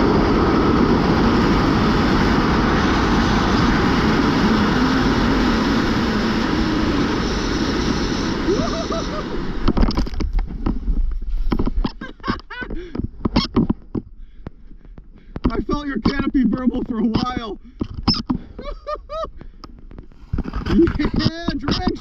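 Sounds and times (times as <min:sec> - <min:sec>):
wind rushing over microphone: 0:00.0 - 0:14.2.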